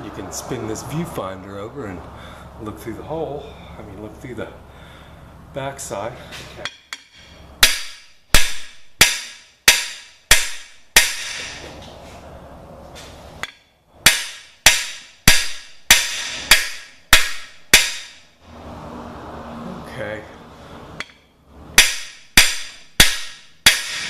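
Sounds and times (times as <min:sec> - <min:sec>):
hammer striking metal tool: 0:06.6 - 0:11.7, 0:13.4 - 0:18.3, 0:21.0 - 0:24.0.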